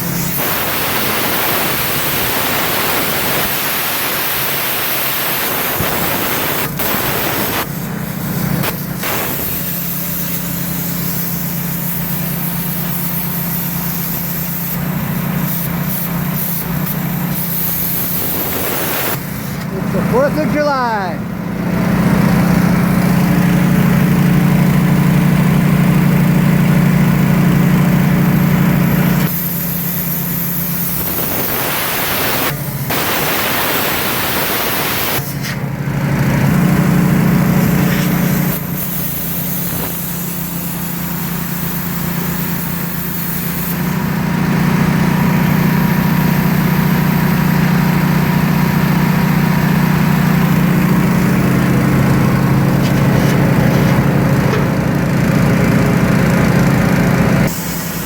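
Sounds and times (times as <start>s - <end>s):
plasma cutter hissing: 0.0s - 21.0s, 28.1s - 35.6s, 37.2s - 44.2s, 45.0s - 55.0s, 57.4s - 58.0s
small engine humming: 0.0s - 58.0s.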